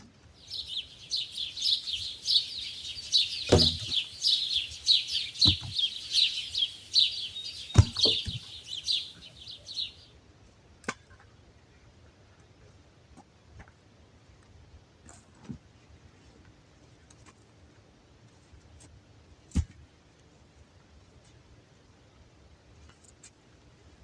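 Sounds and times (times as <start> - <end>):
bird chirping: 0.4 - 10.1
low thumps: 0.5 - 9.1.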